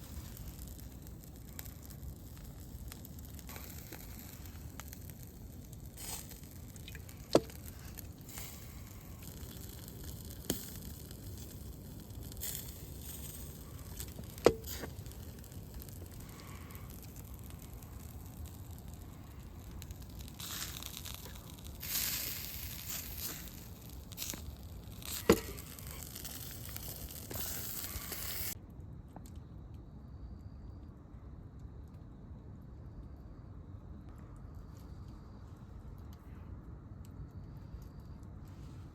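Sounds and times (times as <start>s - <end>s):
fire hissing: 0.0s - 28.6s
campfire crackling: 0.0s - 29.5s
fire popping: 0.0s - 29.5s.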